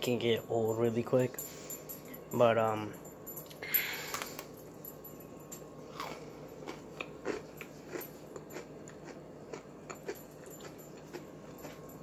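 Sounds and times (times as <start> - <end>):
chewing cookie crunches: 5.9 - 12.0.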